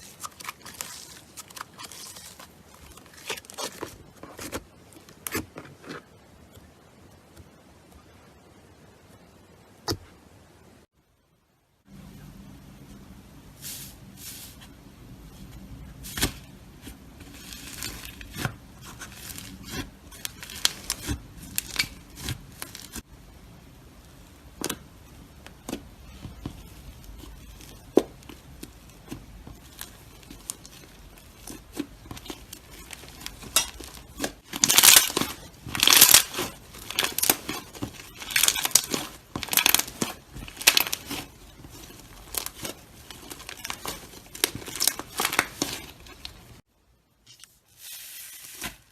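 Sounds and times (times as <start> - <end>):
slime crackling and popping: 17.3 - 23.0, 26.8 - 46.6.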